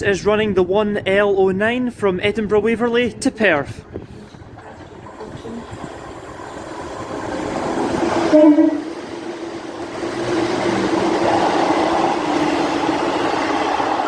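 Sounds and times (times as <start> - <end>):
diesel train passing: 4.8 - 14.0
train horn blast: 8.2 - 9.0.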